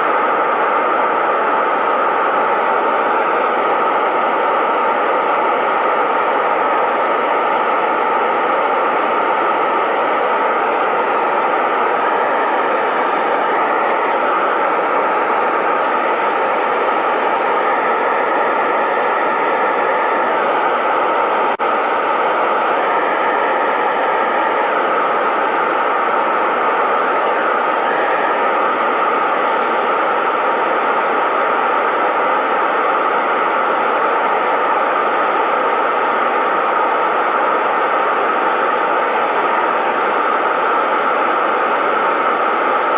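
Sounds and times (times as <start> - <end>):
furnace burner rushing: 0.0 - 33.4.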